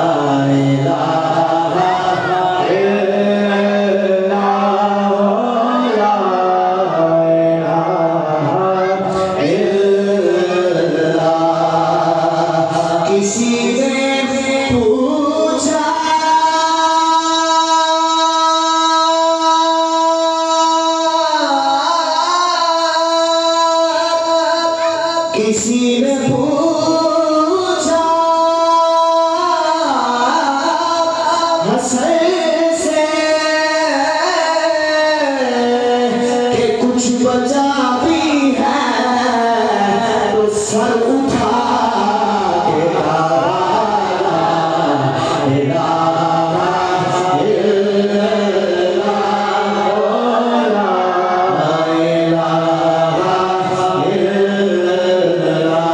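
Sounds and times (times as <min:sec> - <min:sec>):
solo devotional singing: 0:00.0 - 0:55.9.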